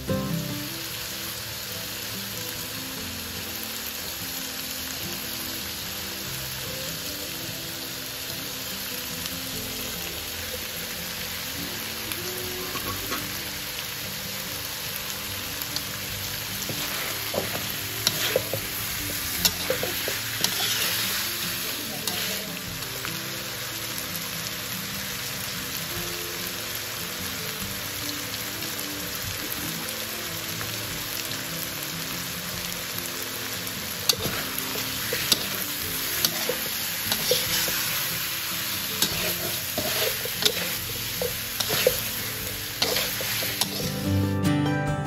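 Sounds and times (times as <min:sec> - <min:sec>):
chicken sizzling in wok: 0:00.0 - 0:44.2
faint background music: 0:00.0 - 0:45.0
spatula clinking and scraping wok: 0:12.6 - 0:13.5, 0:15.7 - 0:22.5, 0:34.1 - 0:44.0.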